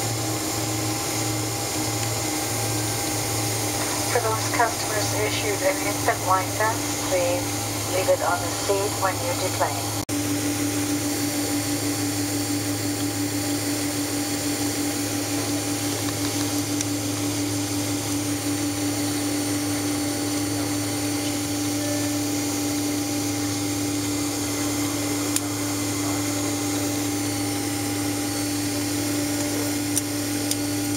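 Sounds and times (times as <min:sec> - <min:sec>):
steady hum: 0:00.1 - 0:30.9
aircraft cabin noise: 0:01.4 - 0:10.0.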